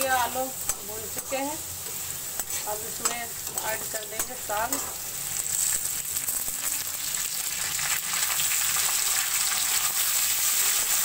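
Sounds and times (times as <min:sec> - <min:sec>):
vegetables sizzling in hot oil: 0:00.0 - 0:11.0
metal spoon scraping and tapping: 0:02.4 - 0:05.0.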